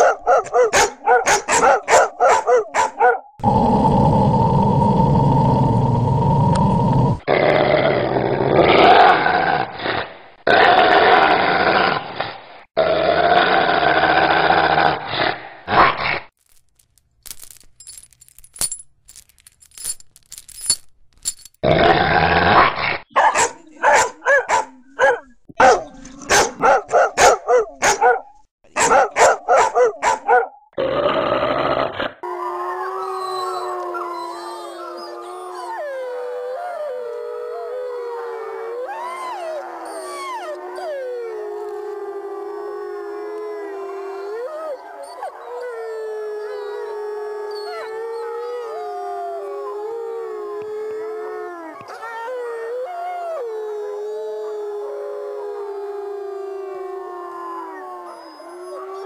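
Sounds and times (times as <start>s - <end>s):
dog yapping: 0.0s - 3.2s, 23.2s - 30.5s
dog barking: 0.0s - 3.3s, 23.1s - 30.6s
dog growling: 3.4s - 12.0s
dog whining: 32.9s - 35.9s.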